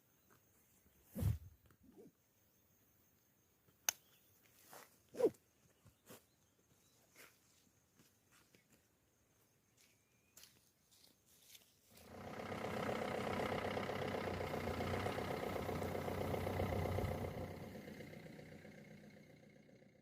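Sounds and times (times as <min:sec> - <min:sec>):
motor vehicle engine running: 0:11.9 - 0:20.0.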